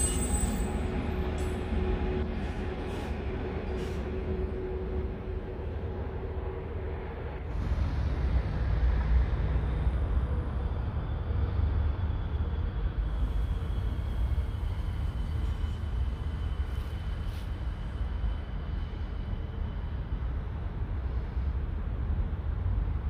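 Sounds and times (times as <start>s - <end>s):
trains rumbling: 0.0s - 23.0s
faint high whine: 9.4s - 21.8s.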